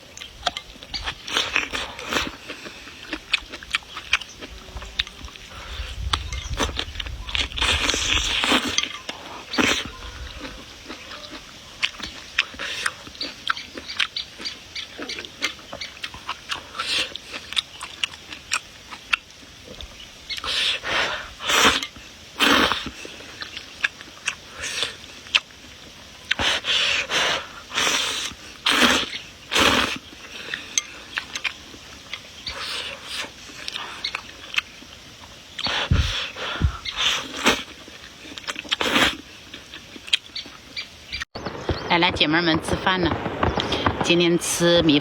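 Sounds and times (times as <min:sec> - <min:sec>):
wet chewing smacks and clicks: 0:00.1 - 0:41.8
loud slurps: 0:05.5 - 0:11.1, 0:20.4 - 0:23.5, 0:26.3 - 0:30.6, 0:35.6 - 0:39.4.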